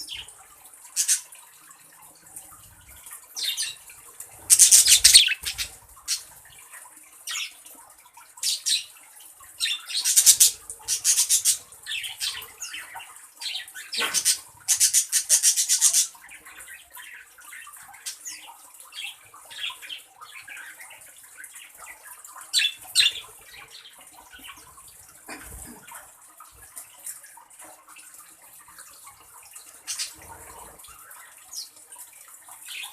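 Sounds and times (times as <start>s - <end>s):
birds scratchy high-pitched calls: 4.4s - 6.3s, 9.6s - 17.3s.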